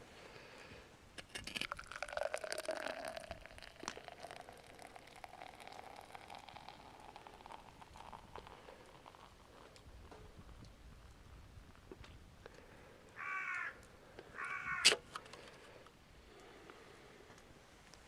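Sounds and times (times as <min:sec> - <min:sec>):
beer pouring into a glass: 0:01.2 - 0:09.9
faint crackles: 0:01.2 - 0:18.0.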